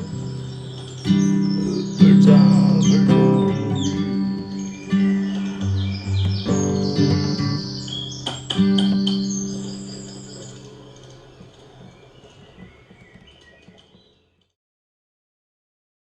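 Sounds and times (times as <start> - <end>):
guitar chord ringing: 0.0 - 11.0
birds chirping faintly: 0.0 - 14.6.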